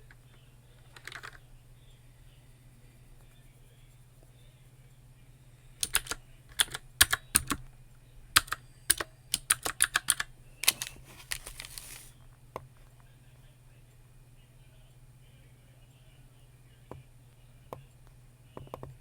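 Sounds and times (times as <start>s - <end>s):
keyboard typing: 0.0s - 1.4s, 5.8s - 7.7s, 8.3s - 12.7s, 18.6s - 19.0s
soft rustle: 10.7s - 13.0s.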